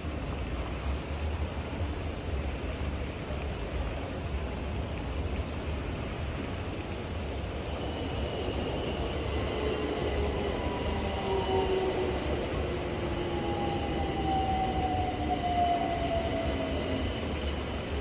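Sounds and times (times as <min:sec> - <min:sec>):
train whine: 0:05.6 - 0:18.0
rain hissing: 0:05.7 - 0:18.0.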